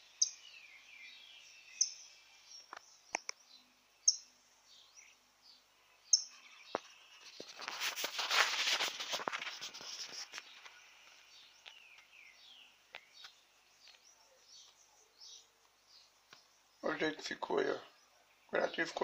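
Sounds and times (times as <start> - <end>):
small bird chirping: 0.0 - 19.0
close rustling and handling noise: 6.4 - 12.1.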